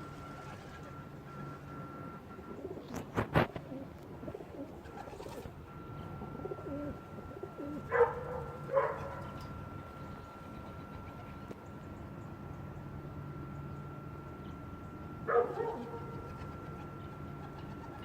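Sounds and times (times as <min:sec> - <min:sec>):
birds calling: 0:02.4 - 0:13.0, 0:13.6 - 0:18.0
faint steady high tone: 0:03.7 - 0:18.0.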